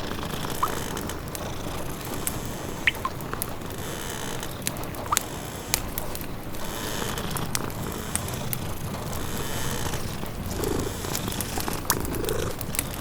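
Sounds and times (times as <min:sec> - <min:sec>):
wood fire crackling: 0:00.0 - 0:13.0
sharp pops: 0:02.8 - 0:03.5.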